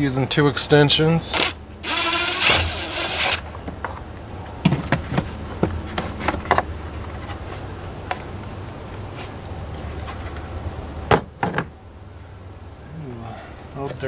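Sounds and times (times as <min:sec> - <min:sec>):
ratchet wrench clicking: 0:01.4 - 0:03.4.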